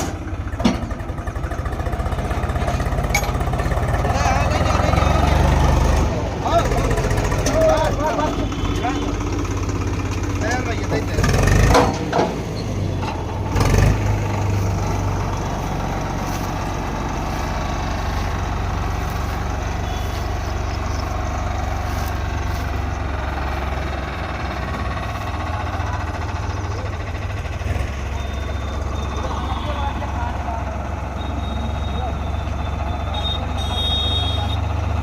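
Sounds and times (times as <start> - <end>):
heavy diesel engine running: 0.0 - 35.0
loud thumps: 11.6 - 13.2.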